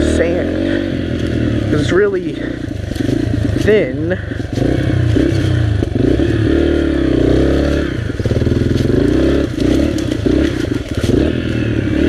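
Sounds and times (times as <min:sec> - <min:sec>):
dirt bike engine revving: 0:00.0 - 0:12.0
bike clatter: 0:08.2 - 0:11.4.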